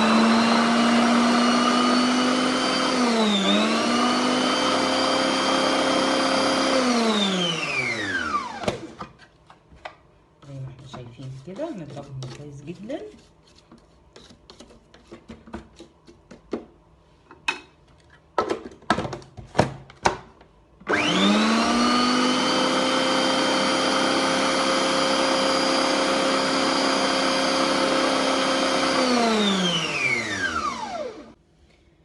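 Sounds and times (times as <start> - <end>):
electric blender whining: 0.0 - 9.1, 20.9 - 31.4.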